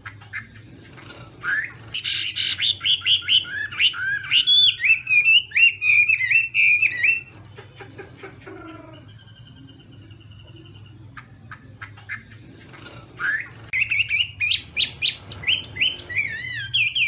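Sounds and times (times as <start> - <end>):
bird singing whistled notes: 1.5 - 7.3, 13.2 - 17.0.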